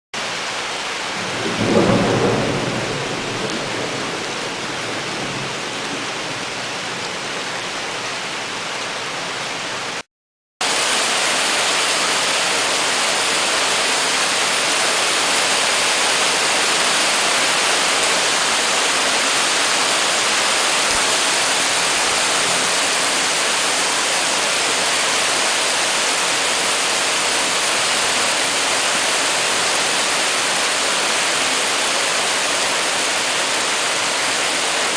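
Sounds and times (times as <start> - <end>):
torrential rain pouring: 0.2 - 10.0, 10.6 - 34.9
low rumble of thunder: 1.2 - 7.9.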